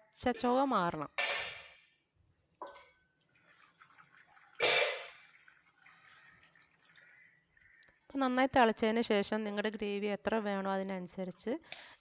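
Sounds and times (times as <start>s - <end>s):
water splashing into a pan: 3.3s - 8.4s.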